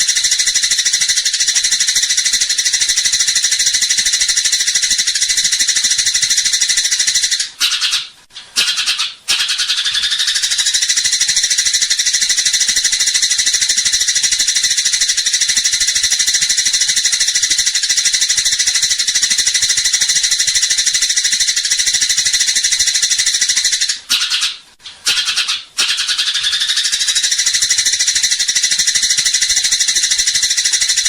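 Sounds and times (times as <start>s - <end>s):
sparrows chirping: 0.0s - 24.5s.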